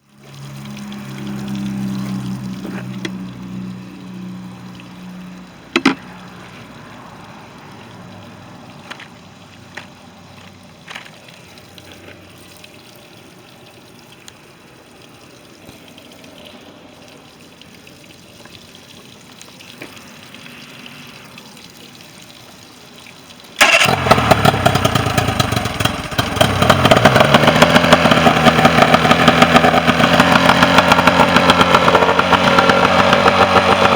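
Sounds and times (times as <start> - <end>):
outboard motor running: 23.6 - 33.9.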